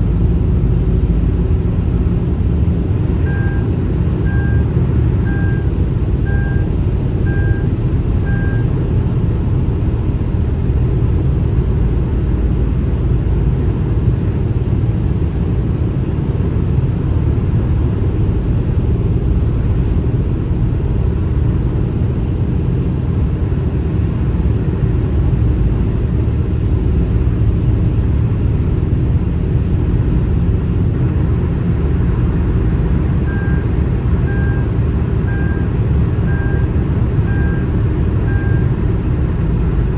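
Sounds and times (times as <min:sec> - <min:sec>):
car and highway road noise: 0:00.0 - 0:39.9
short beep: 0:03.2 - 0:08.7, 0:33.2 - 0:33.6, 0:34.3 - 0:34.7, 0:35.3 - 0:37.7, 0:38.3 - 0:38.7.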